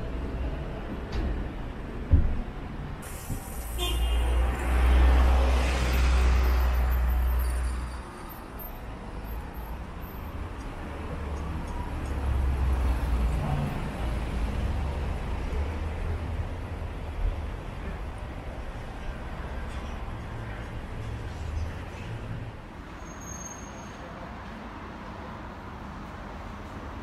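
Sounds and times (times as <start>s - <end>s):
low traffic rumble: 0.0s - 27.0s
vehicle passing close by: 4.2s - 7.4s.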